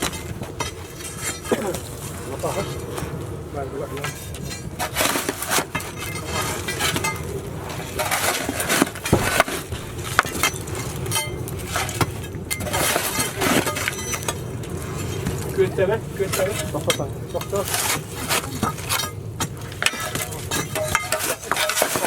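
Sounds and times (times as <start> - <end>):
steady low hum: 0.0 - 22.0
knocks and clinks: 9.0 - 14.4.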